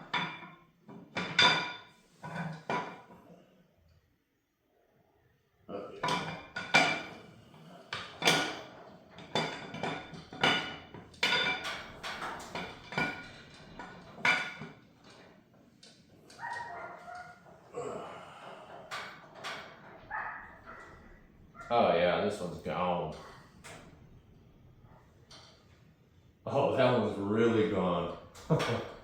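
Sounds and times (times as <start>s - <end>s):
dog barking: 16.4s - 17.4s, 20.0s - 21.8s.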